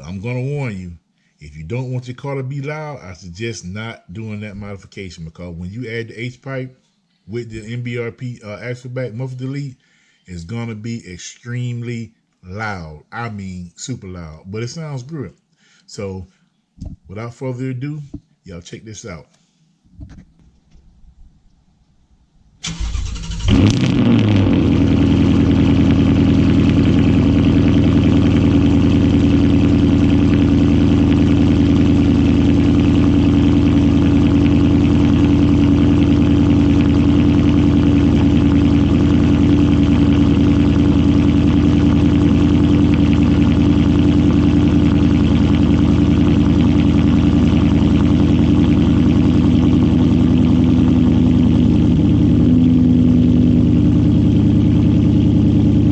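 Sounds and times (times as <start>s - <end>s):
starter motor cranking: 22.6s - 24.0s
car engine idling loudly: 22.8s - 55.9s.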